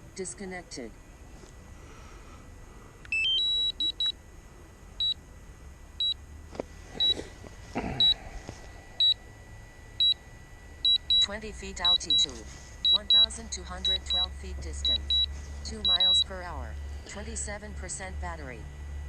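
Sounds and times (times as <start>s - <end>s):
short high beeps: 3.1s - 4.1s, 11.9s - 16.3s.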